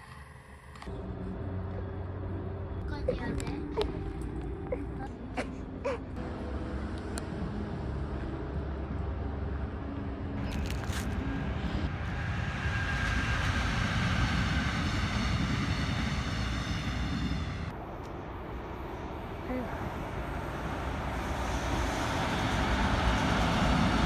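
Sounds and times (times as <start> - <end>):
train wheels rumbling on rail: 10.5 - 24.0.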